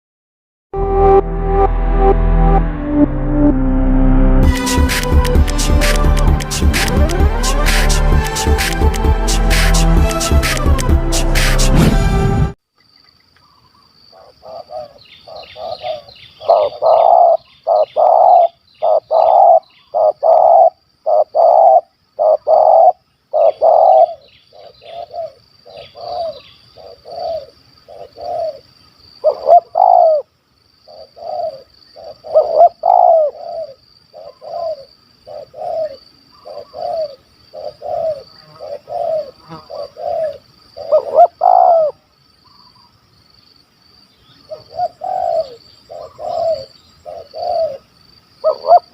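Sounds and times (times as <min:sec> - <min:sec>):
dove cooing: 0:14.2 - 0:28.6, 0:29.2 - 0:30.3, 0:30.9 - 0:42.0, 0:44.5 - 0:47.8, 0:48.4 - 0:48.9.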